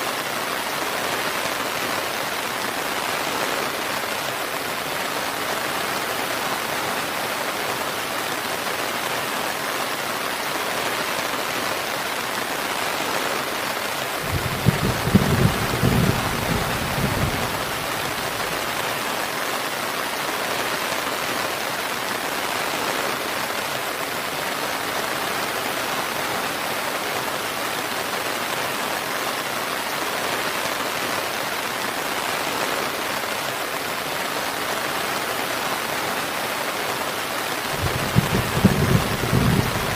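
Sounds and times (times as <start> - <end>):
steady rain hissing: 0.0 - 39.9
low rumble of thunder: 14.2 - 18.6, 37.8 - 39.9.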